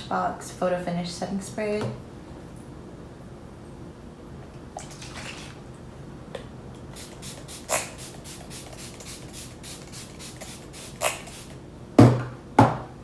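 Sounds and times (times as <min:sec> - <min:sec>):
spray bottle hissing spritzes: 0:07.0 - 0:11.6.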